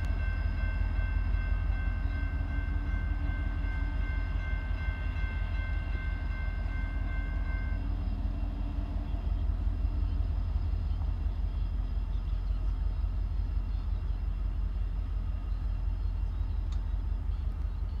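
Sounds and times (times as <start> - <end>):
train rumbling: 0.0 - 18.0.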